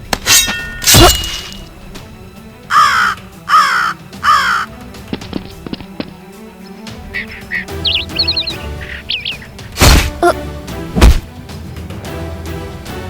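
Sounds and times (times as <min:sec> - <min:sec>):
crow cawing: 0:02.7 - 0:04.7, 0:07.1 - 0:09.6
loud thud: 0:11.0 - 0:11.3.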